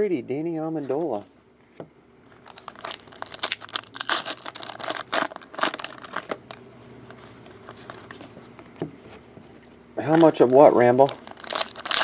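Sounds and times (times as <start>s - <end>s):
plastic wrapper crinkling and tearing: 2.3s - 8.2s, 10.1s - 12.0s.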